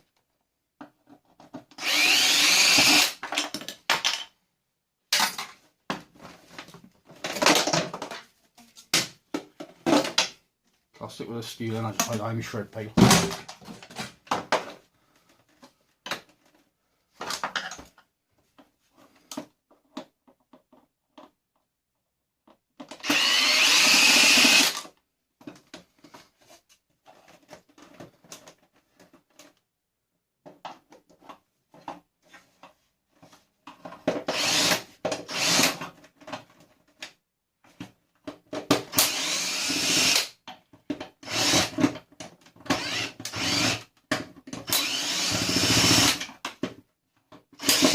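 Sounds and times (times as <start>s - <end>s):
power drill whirring: 1.8s - 3.2s, 23.0s - 24.8s, 34.3s - 35.8s, 38.9s - 40.3s, 41.2s - 41.8s, 42.7s - 43.9s, 44.7s - 46.3s, 47.6s - 47.9s
clicks and clatter of parts: 2.8s - 4.4s, 5.1s - 10.4s.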